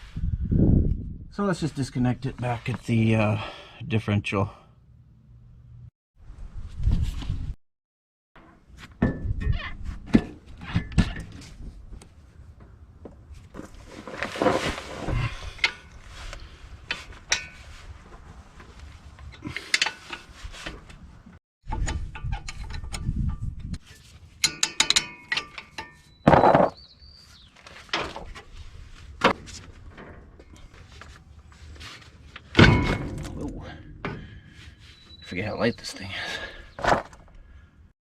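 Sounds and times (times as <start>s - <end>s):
loud metal clank: 32.6s - 33.4s.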